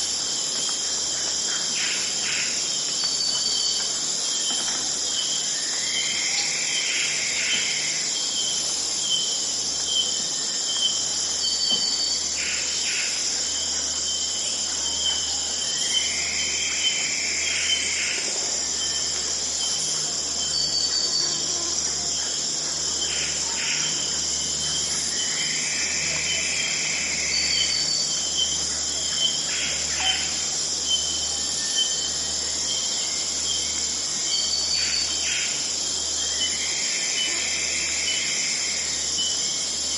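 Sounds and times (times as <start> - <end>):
crickets and insects chirping: 0.0 - 39.9
bird singing: 23.0 - 39.5.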